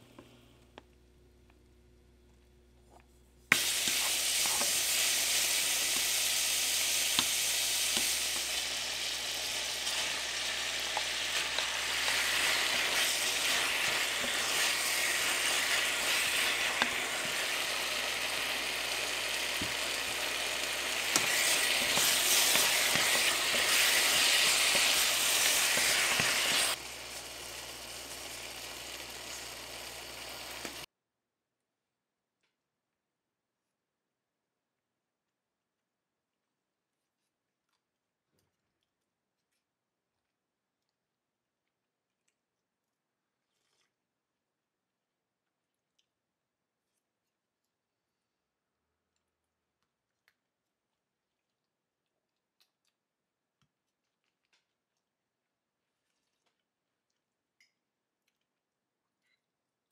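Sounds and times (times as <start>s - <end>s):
food sizzling in a pan: 3.5s - 30.9s.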